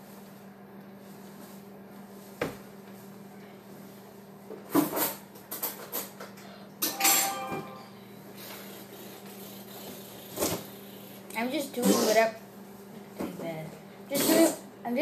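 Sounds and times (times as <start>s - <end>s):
steady low hum: 6.1s - 15.0s.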